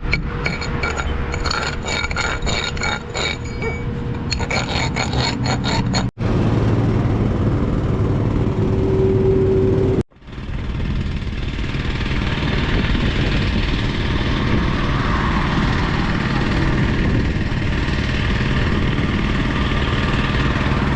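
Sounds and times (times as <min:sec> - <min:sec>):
metal scraping: 0:00.0 - 0:06.2
machine noise with low hum: 0:00.0 - 0:20.9
ringing metal clinks and knocks: 0:00.1 - 0:05.3.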